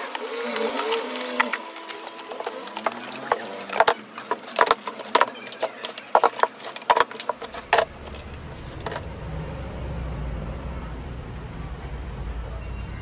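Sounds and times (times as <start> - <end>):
cardboard boxes clicking and knocking: 0.0 - 9.1
plastic packaging rustling: 0.0 - 9.1.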